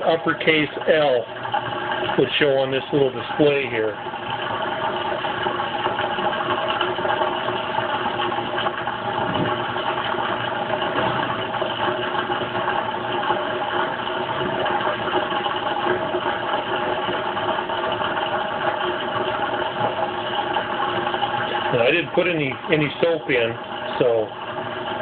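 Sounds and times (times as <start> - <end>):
washing machine drain pump humming: 0.0 - 25.0.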